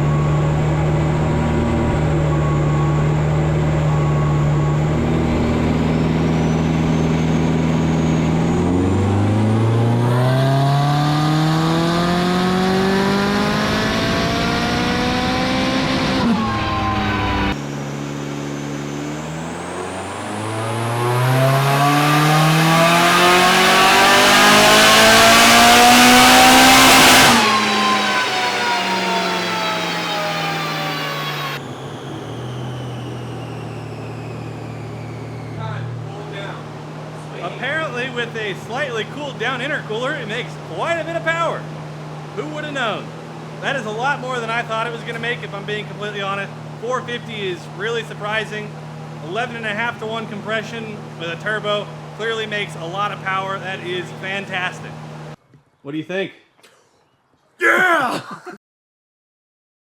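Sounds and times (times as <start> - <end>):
turbo whine: 0.0 - 42.3
car engine revving: 0.0 - 55.4.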